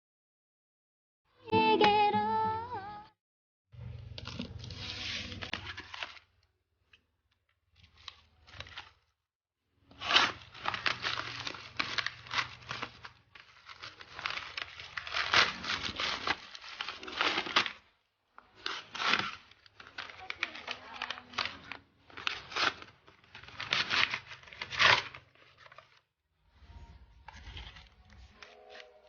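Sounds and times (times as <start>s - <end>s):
packaging torn open and crinkled: 4.0s - 6.5s, 7.7s - 9.2s, 9.8s - 26.1s, 26.7s - 29.0s.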